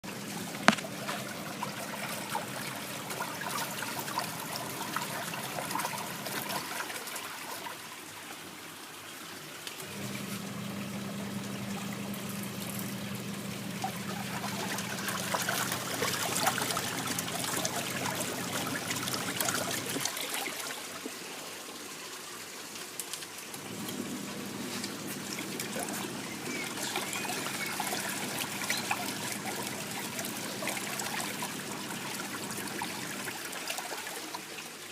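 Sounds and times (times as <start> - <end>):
washing machine motor humming: 0.0 - 6.7, 9.8 - 20.1, 23.6 - 33.6
water sloshing in tub: 0.0 - 8.2, 9.8 - 21.4, 23.4 - 34.9.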